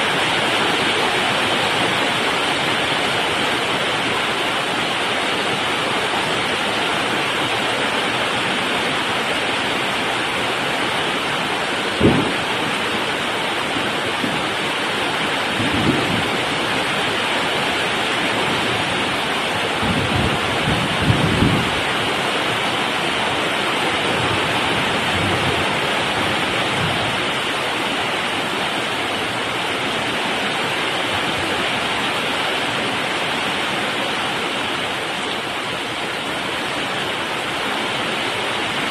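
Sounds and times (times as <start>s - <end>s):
heavy rain pouring: 0.0s - 38.9s
low rolls of thunder: 12.0s - 12.8s, 15.5s - 16.6s.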